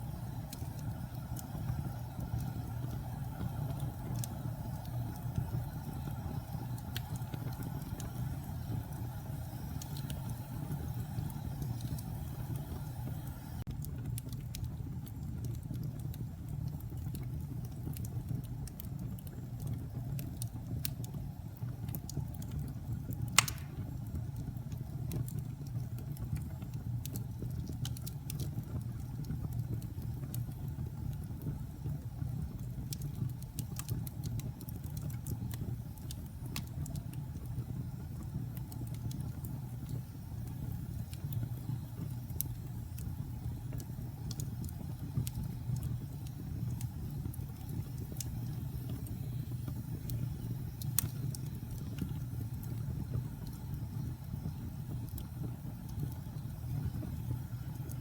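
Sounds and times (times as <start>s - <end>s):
wood fire crackling: 0.0s - 58.0s
loud pop of fire: 23.4s - 24.0s.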